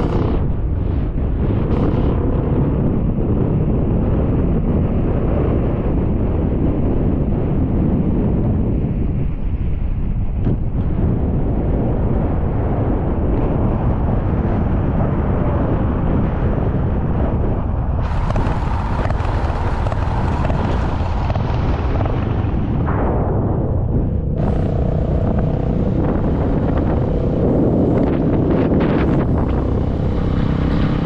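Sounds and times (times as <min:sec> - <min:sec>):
vehicle driving rumble: 0:00.0 - 0:03.8, 0:17.8 - 0:31.0
wind buffeting microphone: 0:00.0 - 0:31.0.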